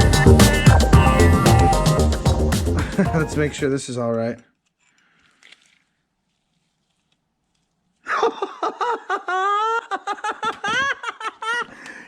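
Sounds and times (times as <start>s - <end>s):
man laughing and exclaiming: 0.0s - 3.6s.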